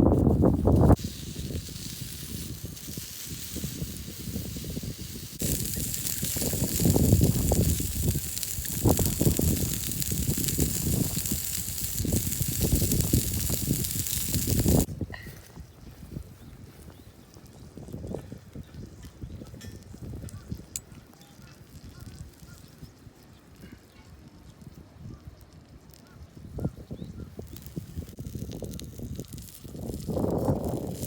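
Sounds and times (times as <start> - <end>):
steady hiss: 0.0 - 14.9.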